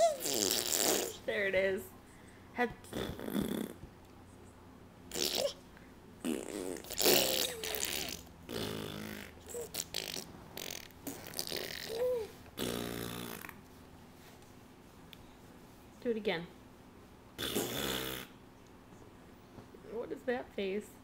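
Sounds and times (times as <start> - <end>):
lip raspberries: 0.0 - 1.4, 5.1 - 13.7, 17.3 - 18.7.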